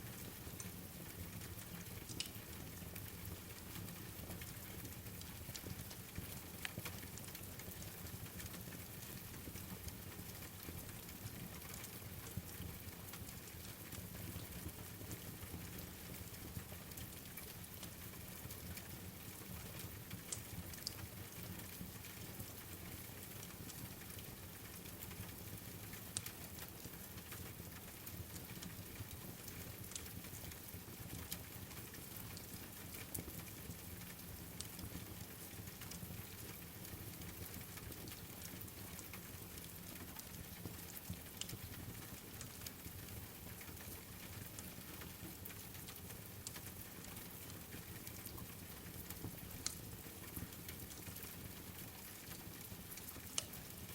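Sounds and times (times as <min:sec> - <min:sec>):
steady rain falling: 0:00.0 - 0:53.9
wood fire crackling: 0:01.4 - 0:03.1, 0:17.0 - 0:53.9.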